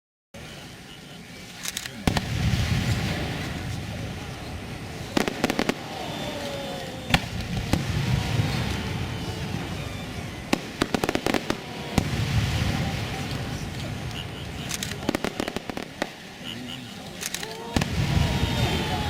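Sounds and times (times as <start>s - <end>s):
fireworks bangs and crackles: 0.4s - 19.0s
low rumble: 6.7s - 16.0s.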